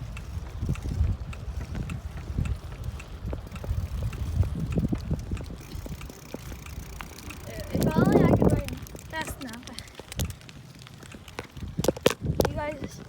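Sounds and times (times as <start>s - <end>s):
bicycle ticking: 0.0s - 13.0s
wind buffeting microphone: 0.0s - 13.0s.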